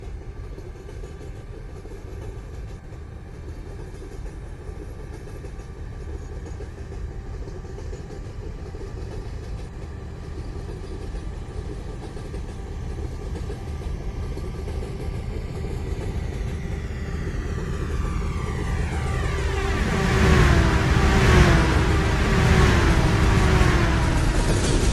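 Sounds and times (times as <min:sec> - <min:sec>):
locomotive engine rumble: 0:14.0 - 0:24.9
faint steady hum: 0:15.2 - 0:24.9.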